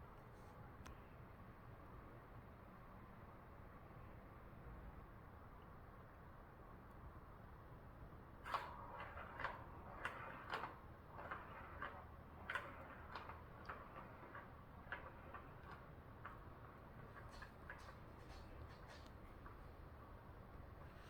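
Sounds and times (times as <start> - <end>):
light clicks and taps: 10.5 - 19.8.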